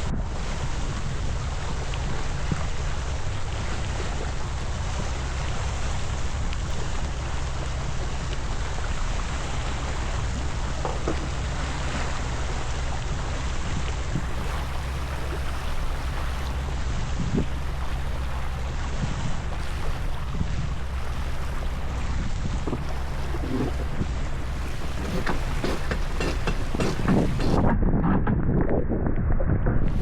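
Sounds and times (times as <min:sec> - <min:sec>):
water washing along hull: 0:00.0 - 0:27.8
wind on microphone: 0:00.0 - 0:30.0.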